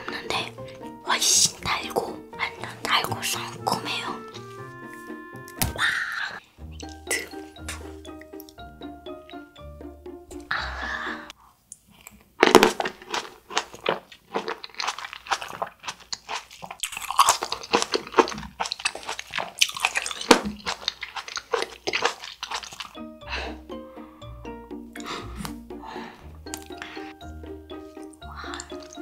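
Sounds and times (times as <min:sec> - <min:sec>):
crunching and wet chewing: 0:11.7 - 0:23.0.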